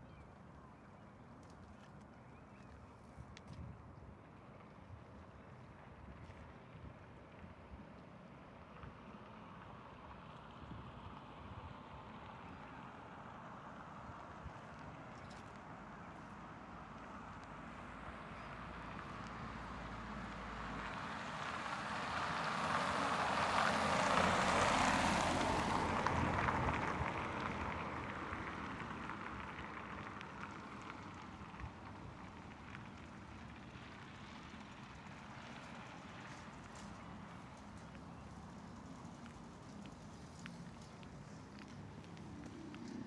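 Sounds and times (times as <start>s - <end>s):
vehicle passing by: 19.9s - 28.9s.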